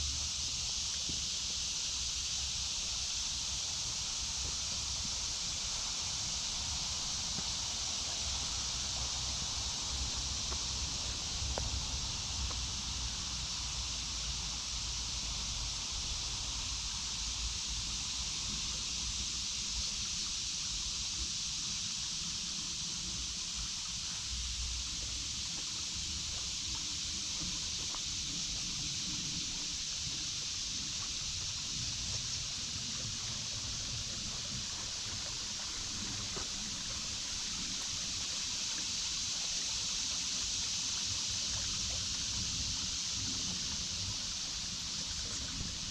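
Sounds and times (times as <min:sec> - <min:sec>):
cicadas droning: 0:00.0 - 0:45.9
babbling creek: 0:23.0 - 0:45.9.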